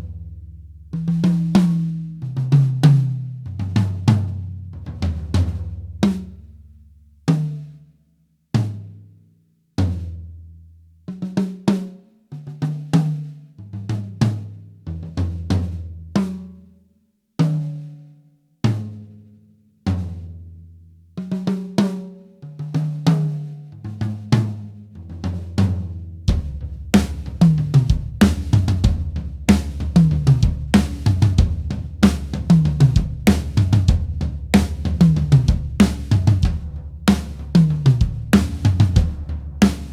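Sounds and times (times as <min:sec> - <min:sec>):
drum kit groove: 0:01.0 - 0:06.4, 0:25.0 - 0:39.9.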